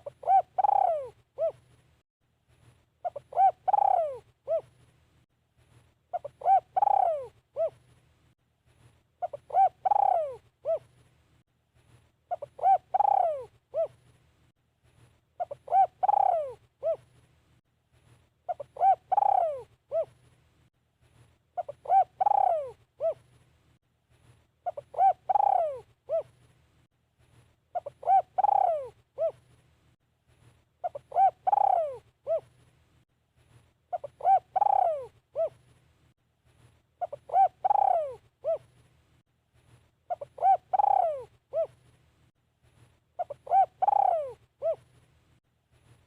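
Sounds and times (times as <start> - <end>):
dove cooing: 0.0 - 1.6, 3.0 - 4.8, 6.1 - 7.8, 9.2 - 10.9, 12.3 - 14.0, 15.4 - 17.1, 18.5 - 20.2, 21.6 - 23.3, 24.6 - 26.4, 27.7 - 29.4, 30.8 - 32.5, 33.9 - 35.6, 37.0 - 38.7, 40.1 - 41.8, 43.2 - 44.9.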